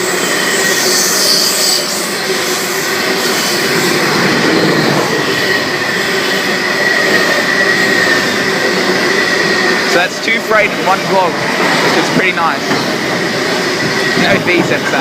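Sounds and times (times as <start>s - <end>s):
high-pitched wheel squeal: 0.0s - 9.8s
freight train wagons rolling: 1.2s - 15.0s.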